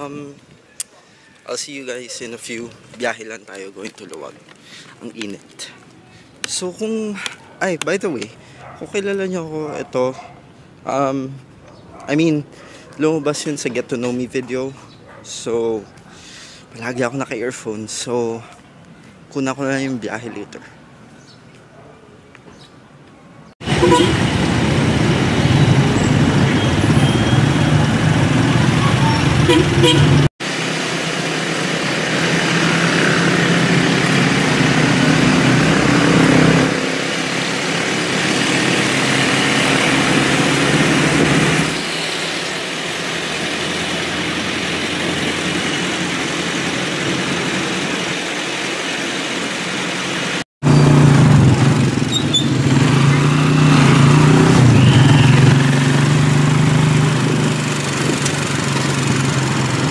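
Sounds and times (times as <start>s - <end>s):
road and wind noise: 0.0s - 59.9s
motor tricycle engine running: 42.4s - 59.9s.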